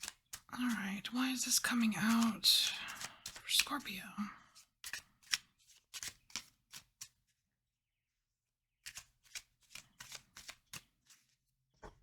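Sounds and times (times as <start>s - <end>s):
cards being shuffled: 0.0s - 4.0s, 4.6s - 7.2s, 8.8s - 11.3s.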